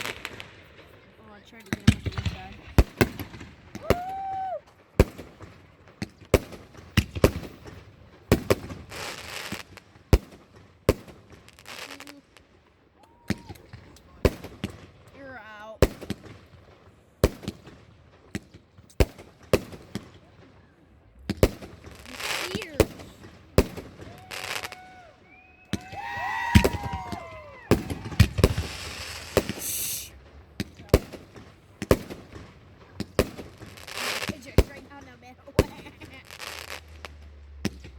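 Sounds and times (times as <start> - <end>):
fireworks crackling hiss: 0.0 - 15.2, 18.8 - 37.9
fireworks bangs: 0.0 - 37.9.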